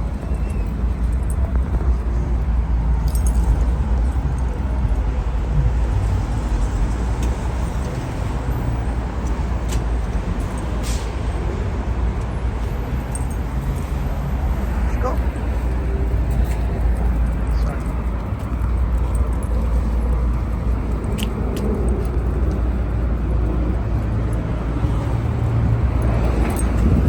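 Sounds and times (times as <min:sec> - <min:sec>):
airliner cabin rumble: 0:14.5 - 0:27.0.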